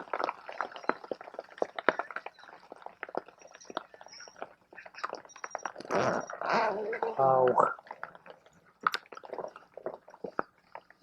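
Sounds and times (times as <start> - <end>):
hail and rain on fabric tent: 0.0 - 4.4.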